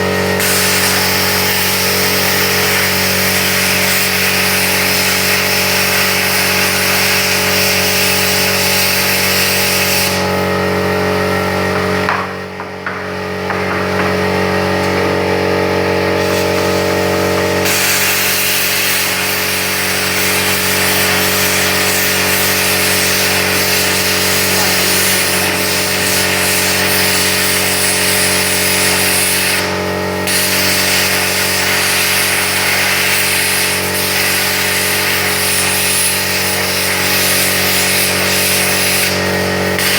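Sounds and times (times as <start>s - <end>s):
plasma cutter hissing: 0.0s - 10.6s, 16.0s - 39.9s
machine hum: 0.0s - 31.6s.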